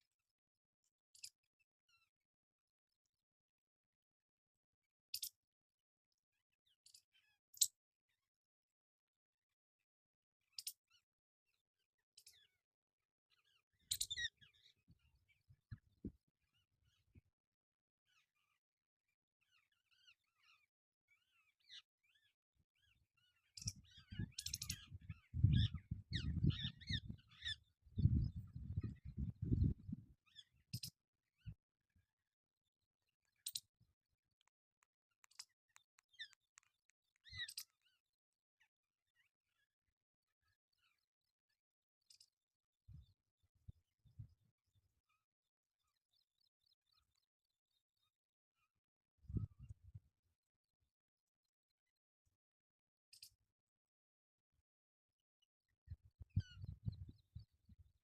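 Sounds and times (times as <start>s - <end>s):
sharp clicks: 34.4s - 37.5s.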